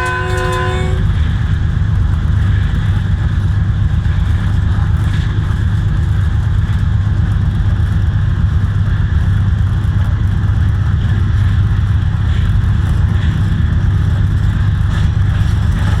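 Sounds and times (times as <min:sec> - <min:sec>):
train wheels clicking: 0:00.0 - 0:01.4
train rumbling at speed: 0:00.0 - 0:16.0.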